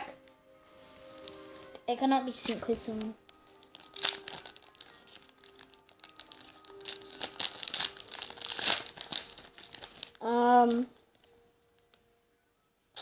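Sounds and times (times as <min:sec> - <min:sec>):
foil wrapper crinkling and tearing: 0:02.4 - 0:12.0.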